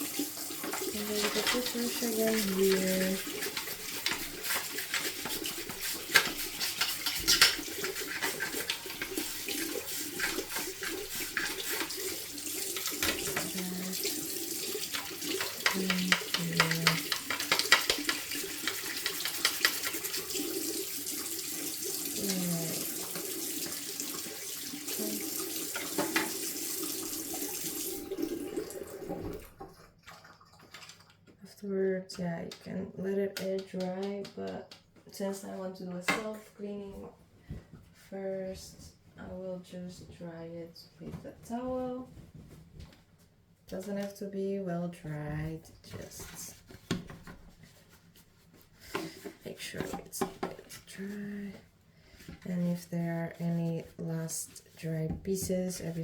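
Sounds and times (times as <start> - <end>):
toothbrush scrubbing plastic: 0.0 - 27.2, 52.2 - 56.0
tap water running into sink: 0.0 - 31.4, 45.4 - 47.5, 48.8 - 51.2.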